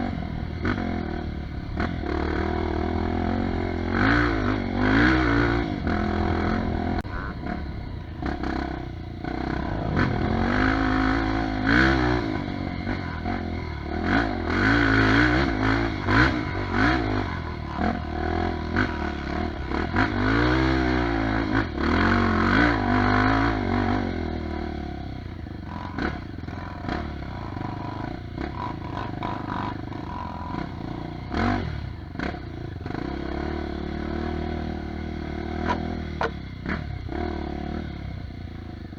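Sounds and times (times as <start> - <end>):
dirt bike engine revving: 0.0 - 38.3.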